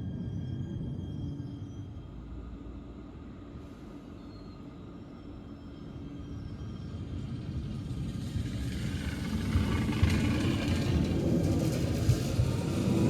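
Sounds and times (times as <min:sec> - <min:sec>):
electric train rumble: 0:00.0 - 0:13.0
wheels rattling on track: 0:06.8 - 0:13.0.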